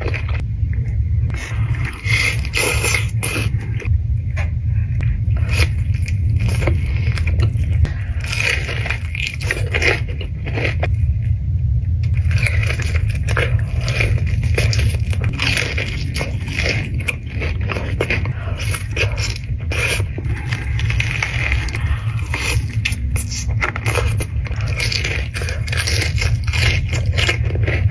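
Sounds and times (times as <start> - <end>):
crunching and chewing: 0.0 - 11.3, 12.0 - 27.9
steady low hum: 0.0 - 27.9.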